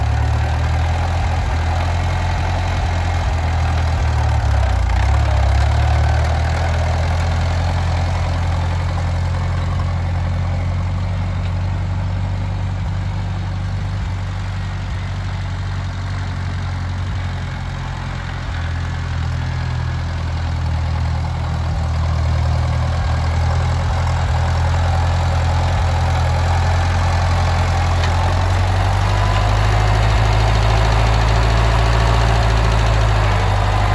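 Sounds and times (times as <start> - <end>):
tractor engine idling: 0.0 - 33.9.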